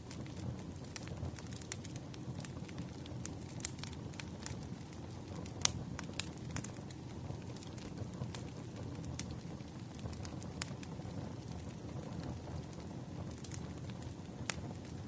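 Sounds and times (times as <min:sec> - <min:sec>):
firewood crackling and popping: 0:00.0 - 0:15.0.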